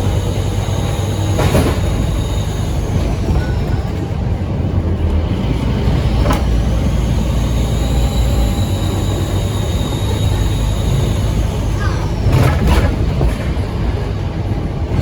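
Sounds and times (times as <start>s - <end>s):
bus diesel engine drone: 0.0s - 15.0s
turbo whistle: 7.2s - 12.1s.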